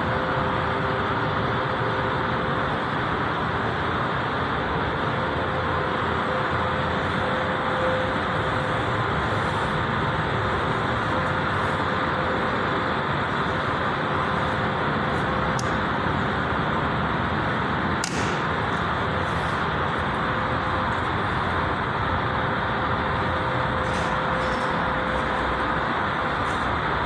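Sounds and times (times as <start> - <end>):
traffic noise: 5.1 - 27.0
short click: 18.0 - 19.6.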